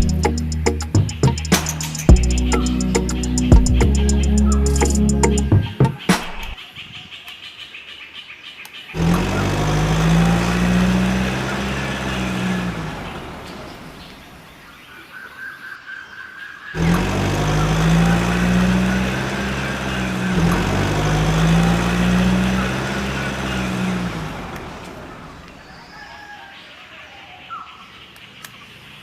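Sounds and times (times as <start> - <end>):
small tractor motor running: 9.0 - 14.1, 16.8 - 25.5.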